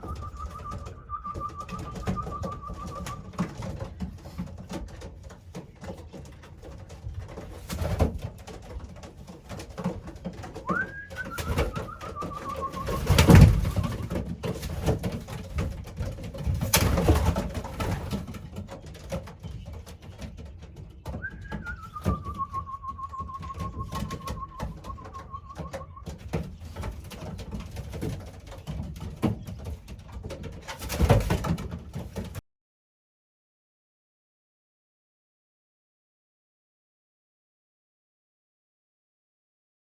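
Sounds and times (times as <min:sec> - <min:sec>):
thin falling whistle: 0:00.0 - 0:03.4, 0:10.7 - 0:14.1, 0:21.2 - 0:26.1
pigeons cooing: 0:00.0 - 0:04.4, 0:10.3 - 0:15.1, 0:20.0 - 0:27.4
flurries of wing noise: 0:10.7 - 0:14.2.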